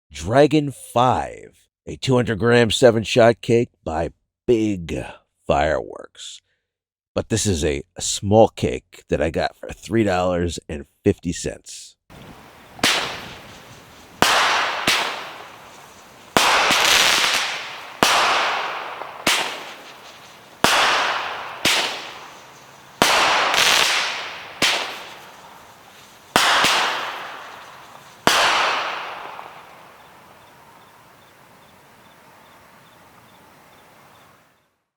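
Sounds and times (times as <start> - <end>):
fireworks bangs: 12.1 - 33.0
falling fireworks hiss: 12.1 - 34.6.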